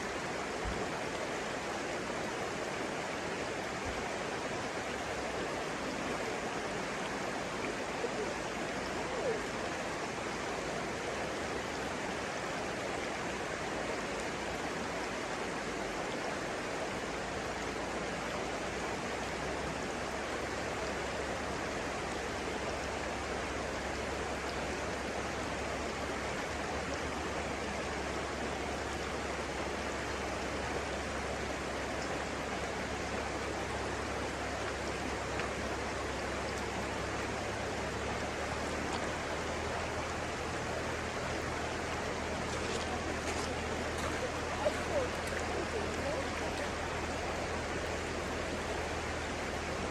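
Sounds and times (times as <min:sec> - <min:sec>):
stream water flowing: 0:00.0 - 0:49.9.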